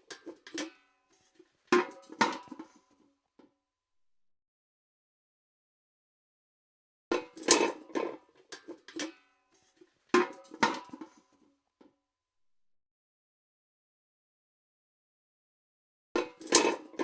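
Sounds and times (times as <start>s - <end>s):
metal bucket clanking: 0.0s - 2.8s, 7.1s - 11.2s, 16.2s - 17.0s.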